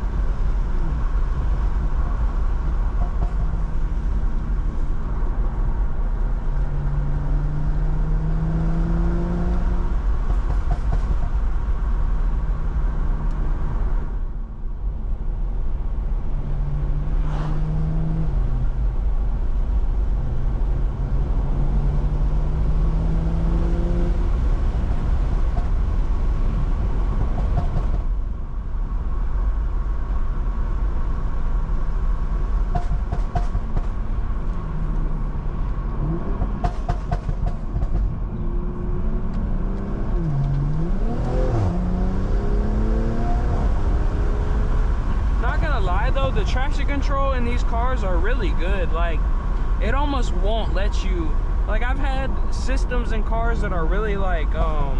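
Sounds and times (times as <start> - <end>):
tyre and road noise: 0.0 - 54.9
car engine revving hard: 38.6 - 45.4.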